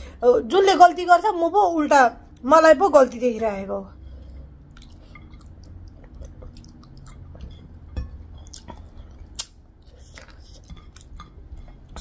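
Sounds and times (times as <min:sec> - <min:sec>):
person chewing: 0:04.0 - 0:12.0
wet mouth clicks and smacks: 0:04.7 - 0:07.6, 0:08.5 - 0:11.4.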